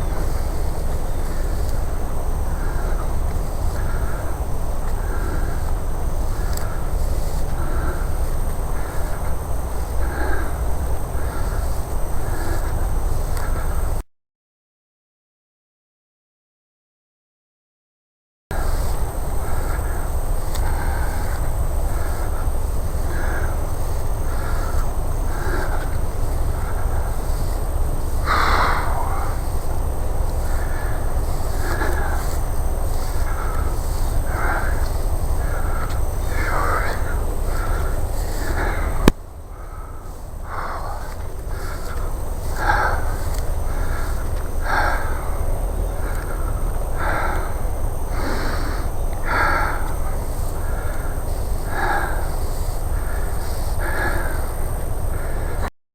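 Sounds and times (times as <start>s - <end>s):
bird short repeated calls: 0.0s - 13.8s, 18.6s - 47.5s
man breathing heavily: 0.0s - 14.0s, 18.5s - 55.7s
steady low rumble: 0.0s - 14.0s, 18.5s - 55.7s.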